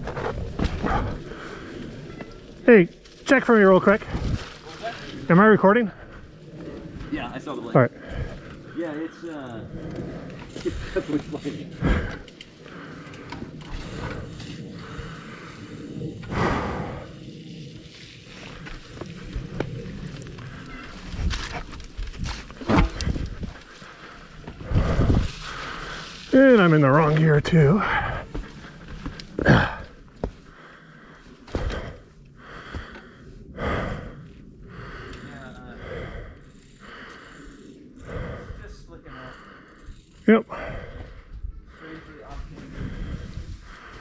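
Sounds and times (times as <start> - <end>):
bike tyres rushing on dirt: 0.0 - 38.7, 39.8 - 44.0
person breathing hard: 11.8 - 17.2, 27.8 - 44.0.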